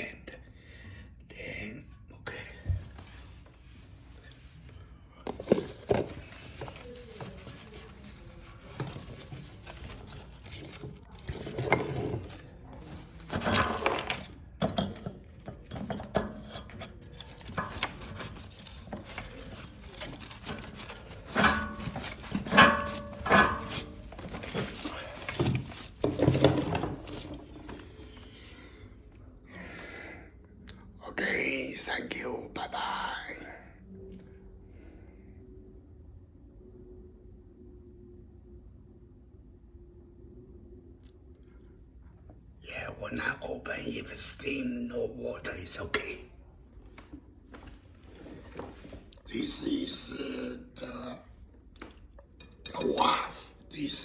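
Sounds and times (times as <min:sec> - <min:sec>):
hard objects knocking and clattering: 0:08.7 - 0:27.8.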